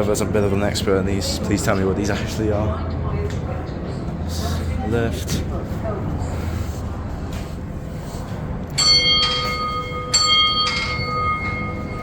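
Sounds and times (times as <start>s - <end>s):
bell ringing: 8.8s - 12.0s.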